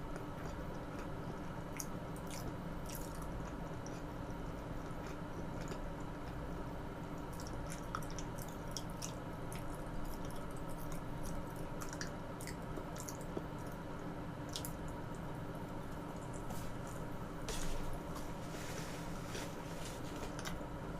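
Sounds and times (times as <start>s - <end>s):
wet chewing mouth sounds: 0.0s - 13.8s
faint hum: 0.0s - 20.9s.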